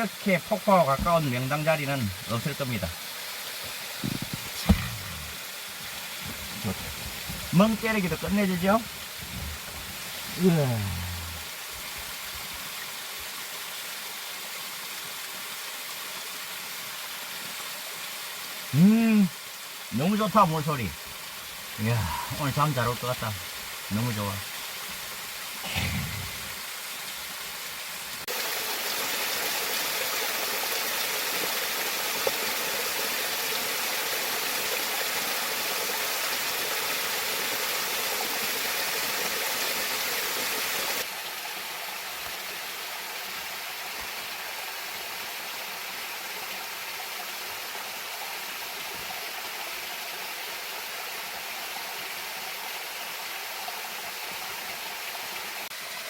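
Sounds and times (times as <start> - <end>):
waterfall rushing: 0.0 - 13.5, 18.6 - 41.8.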